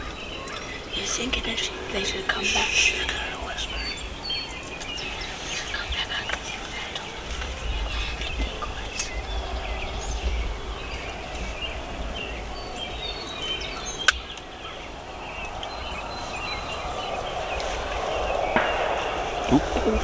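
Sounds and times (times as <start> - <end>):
songbirds chirping: 0.0 - 20.0
turkeys gobbling: 17.7 - 20.0.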